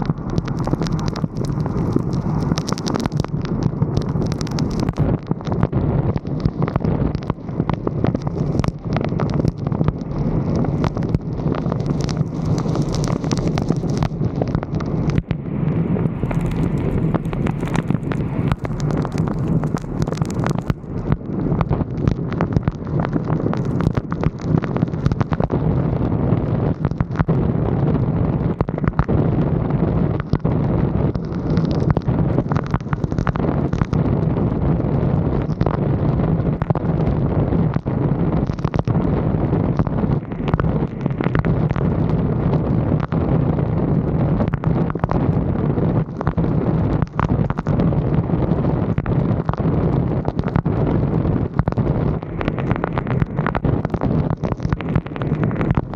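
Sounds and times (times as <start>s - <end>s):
sharp pops: 0.0s - 15.4s, 16.0s - 25.6s
wind buffeting microphone: 0.0s - 55.9s.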